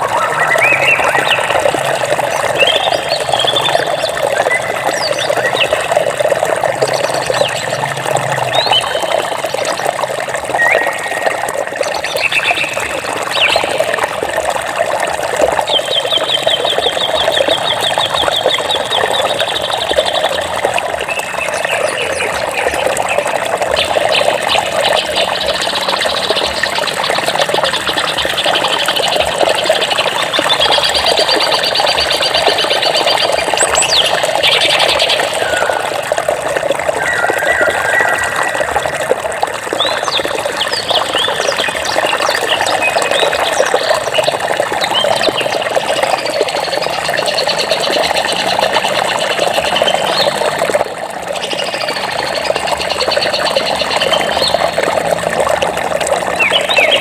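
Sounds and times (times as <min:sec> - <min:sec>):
birds chirping and whistling: 0:00.0 - 0:06.2, 0:10.5 - 0:13.8, 0:31.7 - 0:35.9, 0:36.9 - 0:38.9, 0:56.4 - 0:57.0
water rushing: 0:00.0 - 0:57.0
bird trilling: 0:37.0 - 0:38.5.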